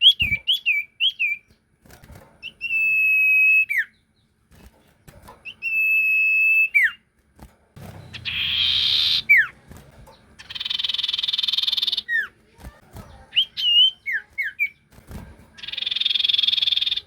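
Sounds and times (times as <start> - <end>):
bird buzzy trills: 7.8 - 17.0.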